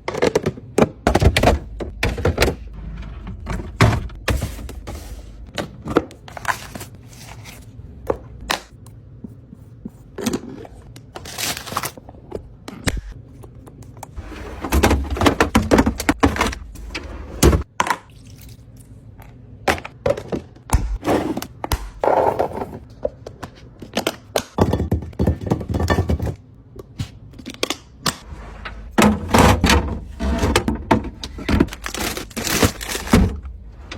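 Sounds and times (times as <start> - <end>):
packaging rustling: 31.6 - 33.4.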